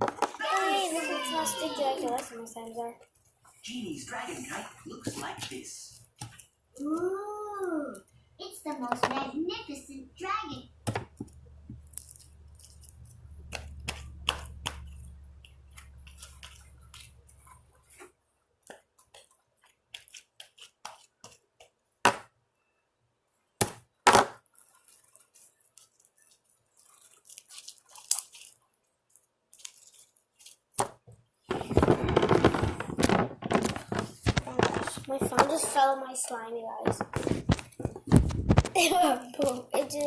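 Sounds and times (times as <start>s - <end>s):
slime squished by hand: 11.0s - 17.8s, 23.6s - 35.9s
burst of noise: 31.5s - 35.0s.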